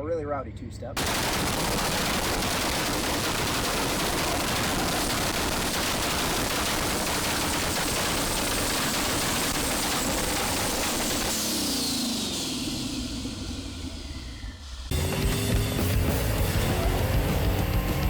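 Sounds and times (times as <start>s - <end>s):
exhaust crackling and banging: 1.0s - 13.6s.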